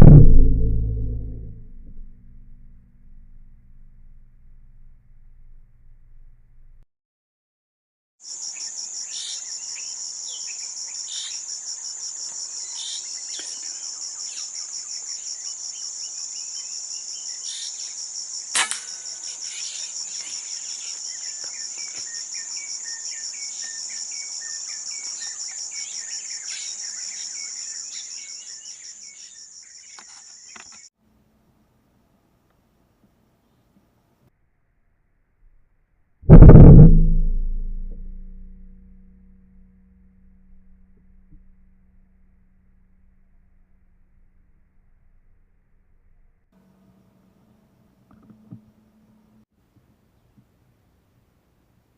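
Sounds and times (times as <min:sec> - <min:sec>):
sharp click: 0:18.6 - 0:19.0.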